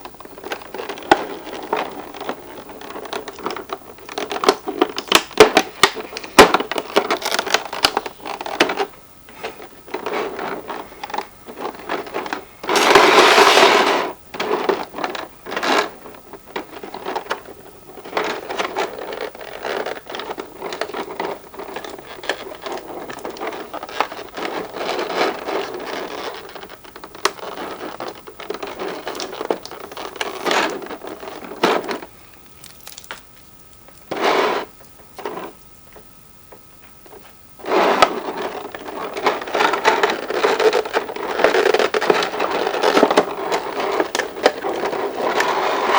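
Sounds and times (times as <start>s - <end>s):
plastic packaging rustling: 0.0s - 45.9s
plastic scraping: 0.0s - 45.9s
loud plastic rasp: 4.1s - 16.0s, 37.6s - 45.9s.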